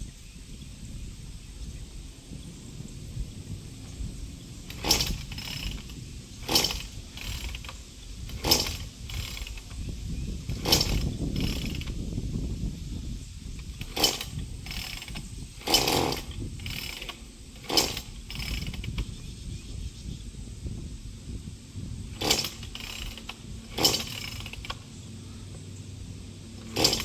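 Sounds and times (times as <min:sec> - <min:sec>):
chainsaw starter cord pulled: 0:04.6 - 0:12.2, 0:13.6 - 0:19.2, 0:22.1 - 0:25.6, 0:26.4 - 0:27.0.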